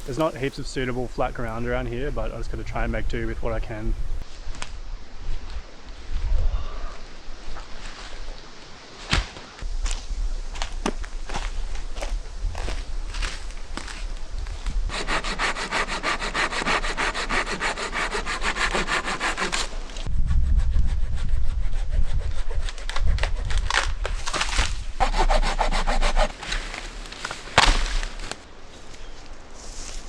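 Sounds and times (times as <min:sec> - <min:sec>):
hand saw cutting wood: 0:14.9 - 0:19.8, 0:25.0 - 0:26.4
sharp crack: 0:26.4 - 0:28.4.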